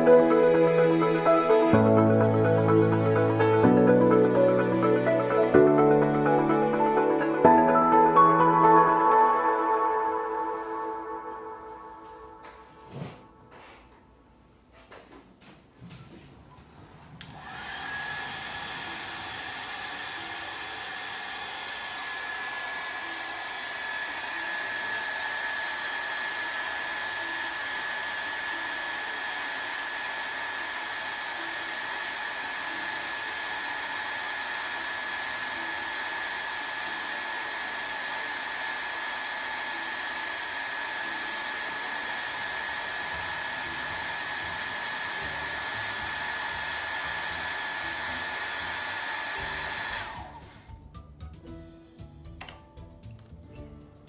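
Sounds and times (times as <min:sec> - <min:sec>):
electric blower motor whine: 0:17.2 - 0:50.8.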